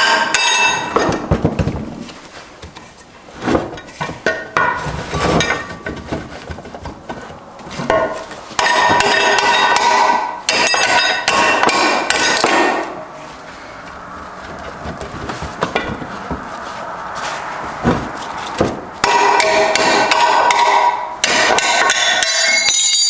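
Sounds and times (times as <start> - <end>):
hammer clanging on metal: 0.0 - 1.4, 7.8 - 13.1, 17.8 - 23.0.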